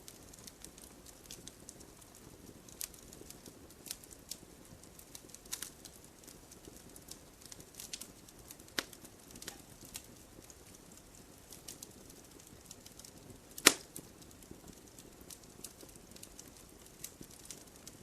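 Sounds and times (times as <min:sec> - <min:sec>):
wood fire crackling: 0:00.0 - 0:18.0
loud sharp pop: 0:13.6 - 0:13.9.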